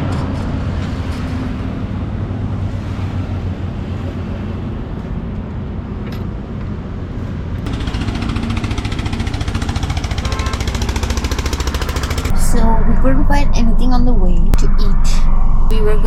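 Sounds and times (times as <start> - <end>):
car engine and tyre rumble: 0.0 - 8.0
fast even pulsing sound: 7.7 - 16.0.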